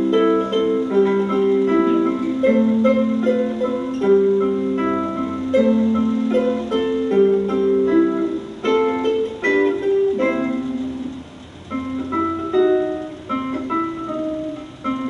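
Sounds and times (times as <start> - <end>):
ukulele melody: 0.0 - 15.0.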